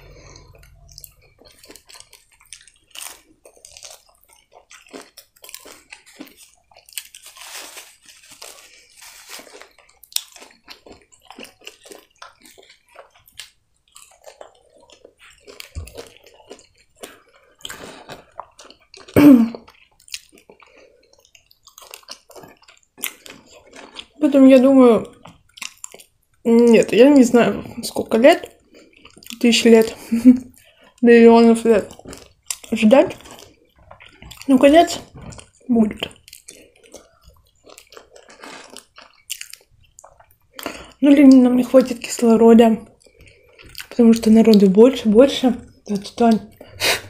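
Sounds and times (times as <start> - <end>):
crunchy chewing: 0.0 - 24.4, 25.0 - 26.9, 27.6 - 47.0
loud throat sound: 19.2 - 19.6, 46.5 - 47.0.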